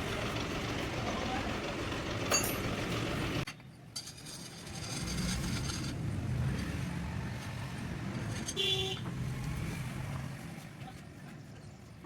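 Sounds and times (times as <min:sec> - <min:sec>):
vehicle engine rumbling: 0:00.0 - 0:03.4.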